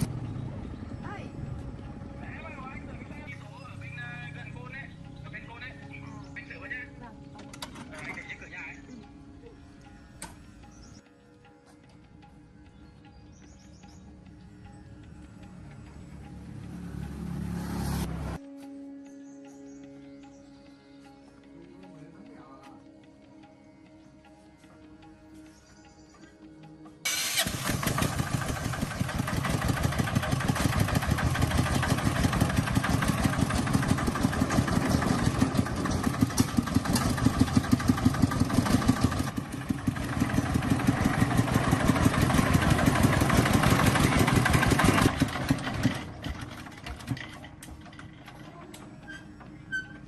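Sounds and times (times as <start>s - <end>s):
tractor diesel engine running: 0.0s - 8.8s, 27.1s - 50.0s.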